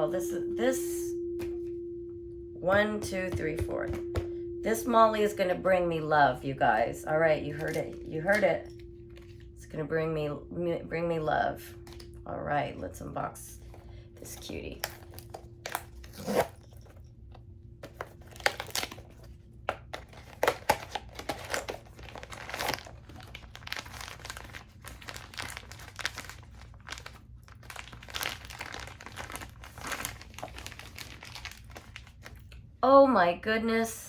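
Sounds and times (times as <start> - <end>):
packaging tearing and crinkling: 14.8 - 17.0, 17.9 - 32.6.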